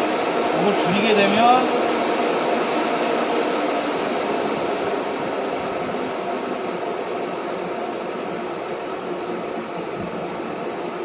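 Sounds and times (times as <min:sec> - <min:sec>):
condenser fan humming: 0:00.0 - 0:11.0.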